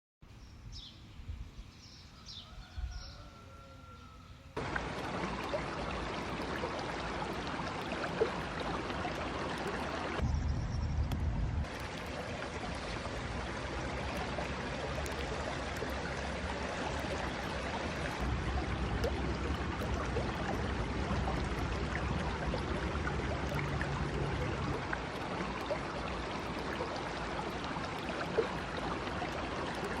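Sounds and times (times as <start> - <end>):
stream flowing: 4.6 - 10.3, 11.0 - 30.0.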